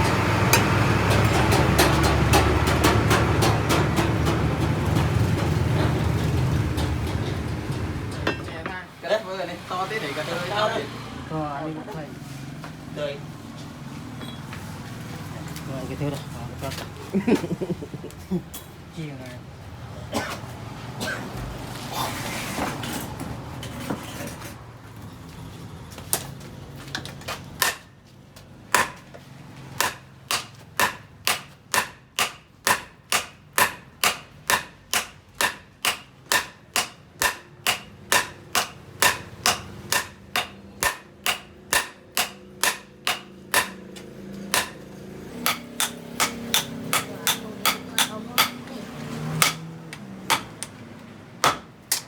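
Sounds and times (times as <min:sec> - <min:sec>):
hammer striking steel on anvil: 0:27.6 - 0:27.9, 0:28.7 - 0:29.0, 0:29.8 - 0:48.7, 0:49.4 - 0:49.7, 0:50.3 - 0:50.8, 0:51.4 - 0:52.0.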